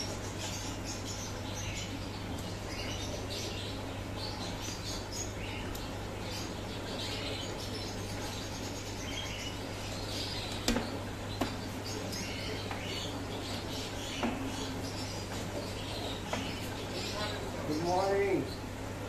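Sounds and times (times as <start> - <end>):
small birds chirping: 0.0 - 19.0
steady low hum: 0.0 - 19.0.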